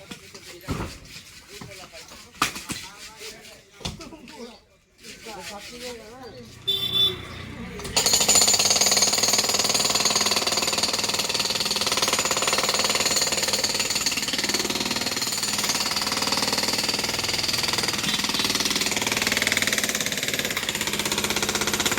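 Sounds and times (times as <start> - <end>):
demolition breaker hammering masonry: 7.8 - 21.9.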